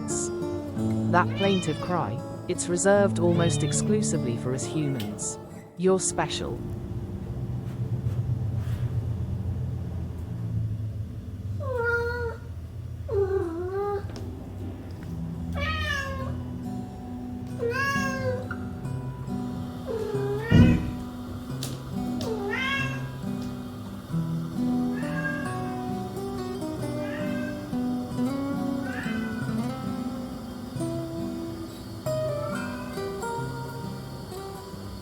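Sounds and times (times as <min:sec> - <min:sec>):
background music: 0:00.0 - 0:07.2
cat meowing: 0:01.2 - 0:02.2, 0:03.2 - 0:05.4, 0:11.6 - 0:14.1, 0:15.5 - 0:16.5, 0:17.6 - 0:18.5, 0:19.9 - 0:21.1, 0:22.2 - 0:23.2, 0:24.9 - 0:25.9, 0:26.8 - 0:27.7, 0:28.6 - 0:29.7, 0:32.4 - 0:33.2
sharp thump: 0:20.5 - 0:21.0.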